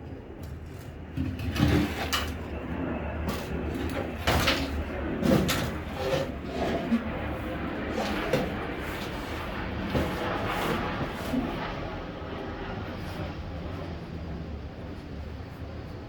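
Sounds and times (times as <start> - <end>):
steady low hum: 0.0 - 16.0
knocks clatters and rustles: 0.4 - 2.6, 3.2 - 11.6.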